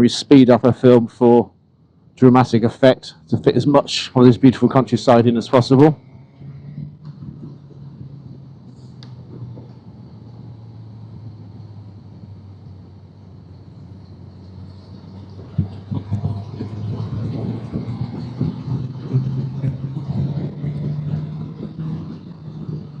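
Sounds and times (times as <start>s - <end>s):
motorcycle engine cruising: 0.0s - 23.0s
road and wind noise: 0.0s - 23.0s.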